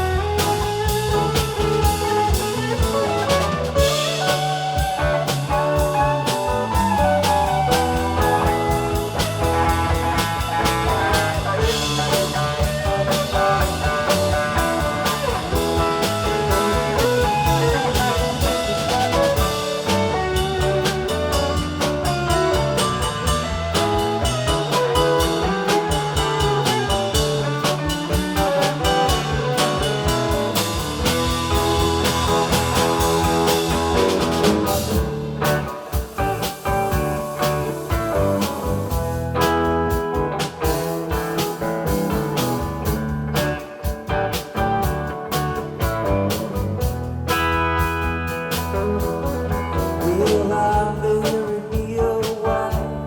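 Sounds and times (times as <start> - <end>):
rock band playing: 0.0 - 53.0.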